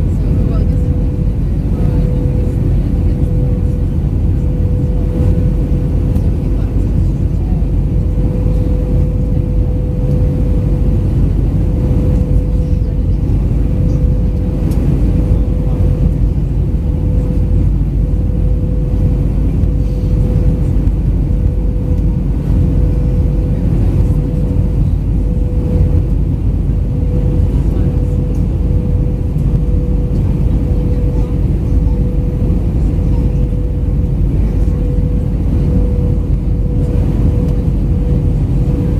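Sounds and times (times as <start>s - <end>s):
airliner cabin engine roar: 0.0s - 38.9s.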